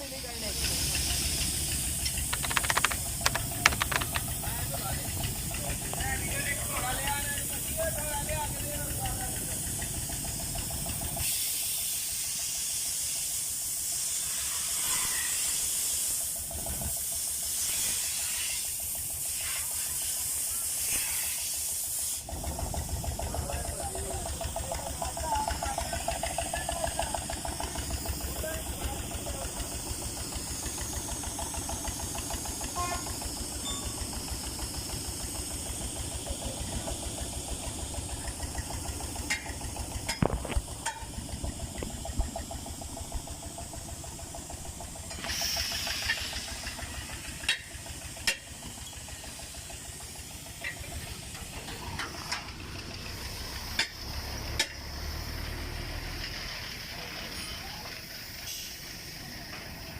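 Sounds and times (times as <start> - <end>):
motor running with low pulsing: 0.0 - 11.2, 22.3 - 57.4
constant hiss: 0.0 - 22.3
burst of hissing air: 11.0 - 22.5, 27.3 - 33.6, 41.2 - 50.6, 58.0 - 59.9.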